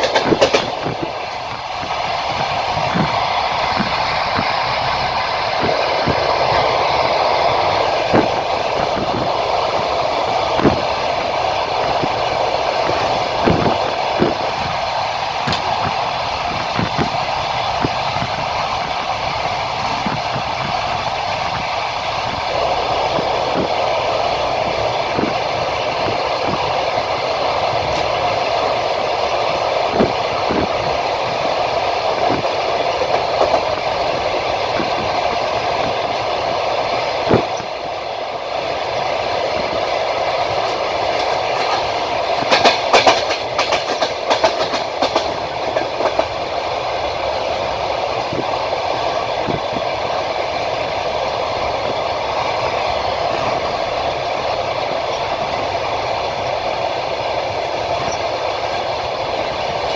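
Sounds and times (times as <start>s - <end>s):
wheels knocking over rail joints: 0.0s - 6.8s, 39.6s - 47.0s
rumble of train wheels on rails: 0.0s - 59.9s.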